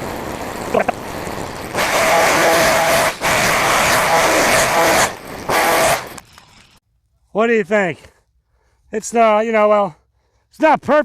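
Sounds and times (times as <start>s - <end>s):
small gas engine revving: 0.0s - 6.4s.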